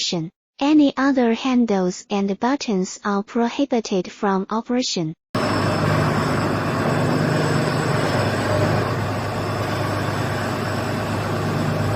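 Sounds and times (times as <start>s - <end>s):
drilling rig engine humming: 5.4s - 11.9s.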